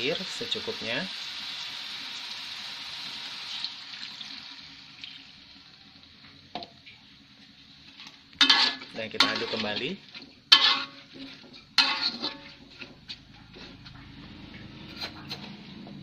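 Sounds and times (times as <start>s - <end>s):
food sizzling in hot oil: 0.0s - 15.1s
water pouring: 3.3s - 5.6s.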